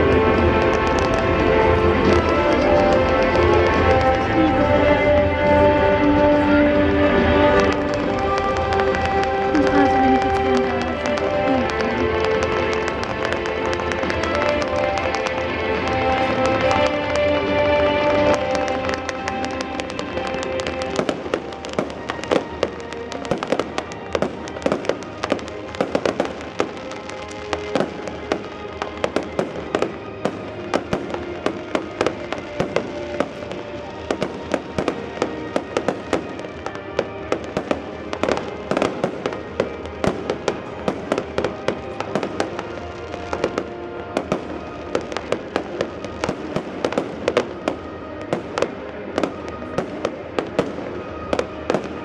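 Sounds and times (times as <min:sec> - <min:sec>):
fireworks bangs and crackling: 0:00.0 - 0:52.0
loud music: 0:00.0 - 0:52.0.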